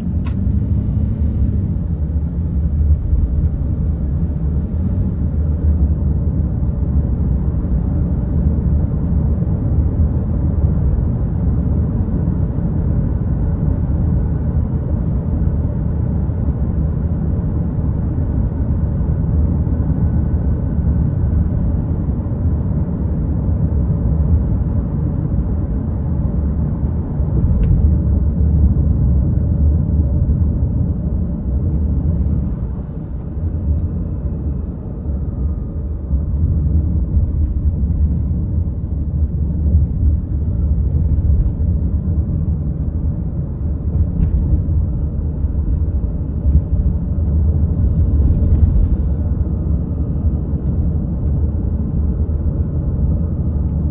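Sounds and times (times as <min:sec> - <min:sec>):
car road and engine noise: 0:00.0 - 0:53.9.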